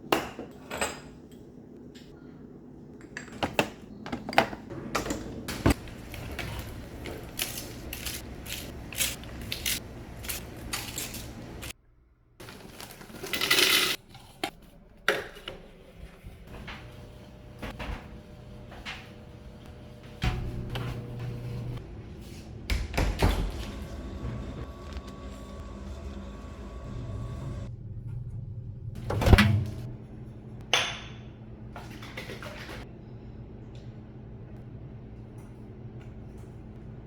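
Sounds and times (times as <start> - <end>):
household items clattering: 12.4 - 14.4.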